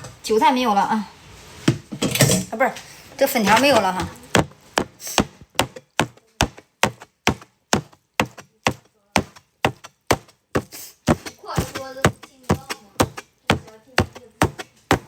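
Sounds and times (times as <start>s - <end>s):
knife chopping on cutting board: 4.3s - 15.0s.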